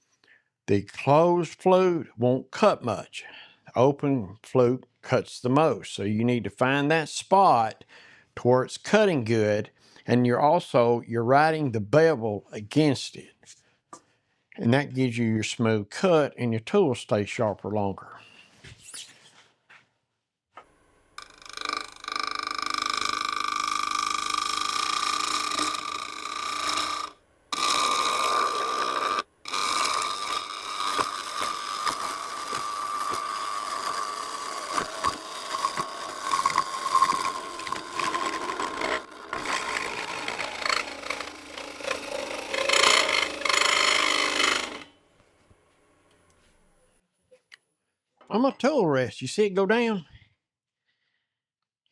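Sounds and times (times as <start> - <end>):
gouge cutting wood on a lathe: 21.2 - 45.0.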